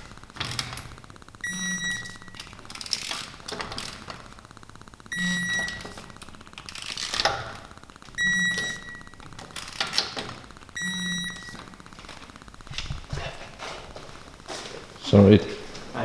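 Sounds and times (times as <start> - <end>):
electronic beep: 1.4 - 2.6, 5.1 - 6.3, 8.1 - 9.3, 10.7 - 11.8.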